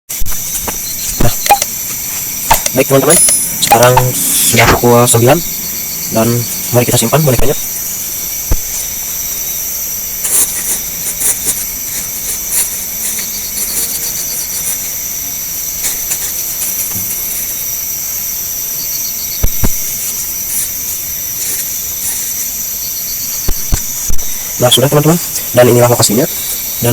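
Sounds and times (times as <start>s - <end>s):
crickets trilling: 0.1s - 26.9s
insect chirps: 0.1s - 26.9s
handling clicks and knocks: 0.3s - 4.8s, 10.2s - 17.6s.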